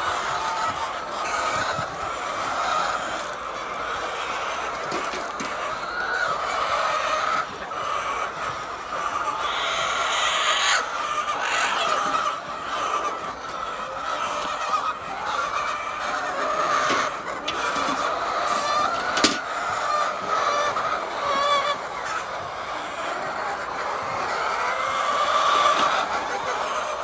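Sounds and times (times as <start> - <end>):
hens clucking: 0.0 - 27.0.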